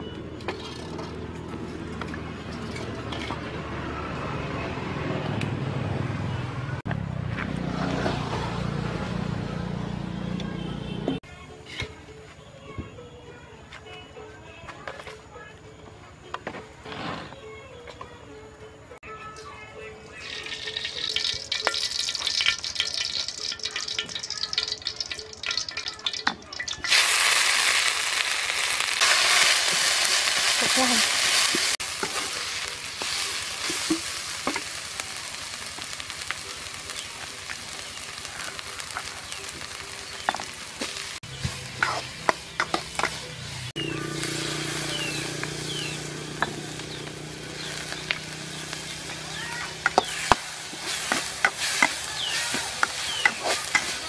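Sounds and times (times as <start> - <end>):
metal spatula scraping a wok: 2.5 - 3.6, 29.0 - 34.3, 40.9 - 43.7, 49.8 - 54.0
food sizzling in hot oil: 20.2 - 54.0.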